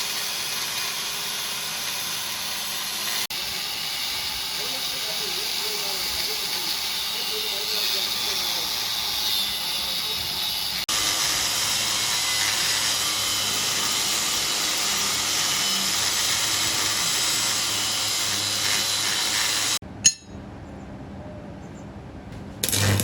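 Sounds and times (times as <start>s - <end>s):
welding hiss: 22.6s - 23.0s.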